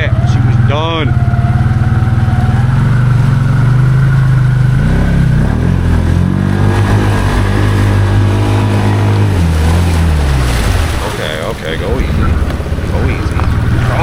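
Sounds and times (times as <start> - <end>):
atv engine revving under load: 0.0 - 14.0.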